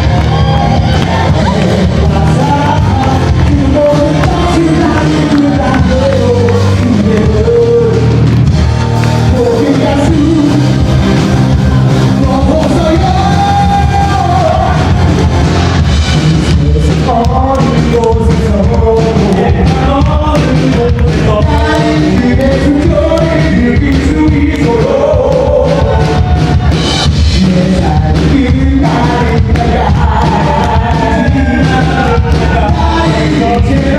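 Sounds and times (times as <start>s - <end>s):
amplified band playing: 0.0s - 33.9s
person singing: 0.0s - 33.9s.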